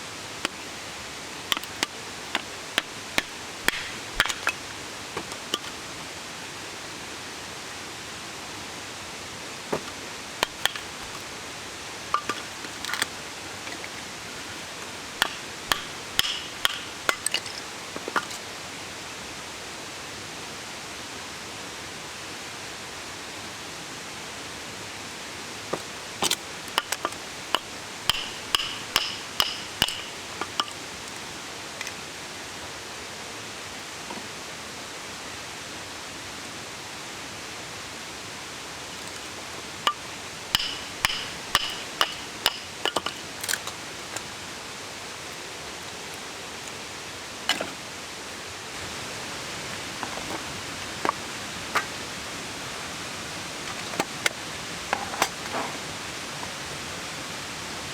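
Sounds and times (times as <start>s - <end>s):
steady rushing hiss: 0.0s - 57.9s
hard objects clinking: 1.5s - 4.7s, 12.2s - 18.4s, 26.2s - 30.8s, 40.6s - 43.8s.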